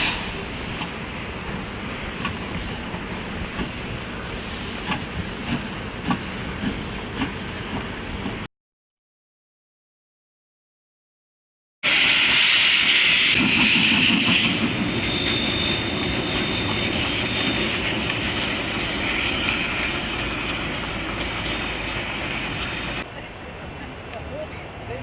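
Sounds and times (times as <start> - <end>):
train clattering on rails: 0.0 - 8.5, 13.0 - 23.1
high squeal: 11.9 - 23.0.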